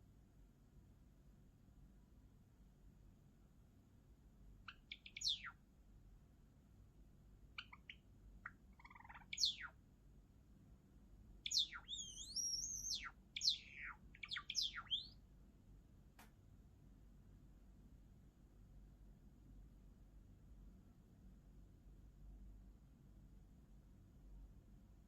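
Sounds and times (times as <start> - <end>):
bird chirping: 4.7 - 5.6, 7.5 - 9.8, 11.4 - 15.2
sparrow singing: 4.7 - 5.6, 7.6 - 9.8, 11.4 - 15.2
wavering bird whistle: 4.9 - 5.6, 8.8 - 9.7, 11.5 - 15.2.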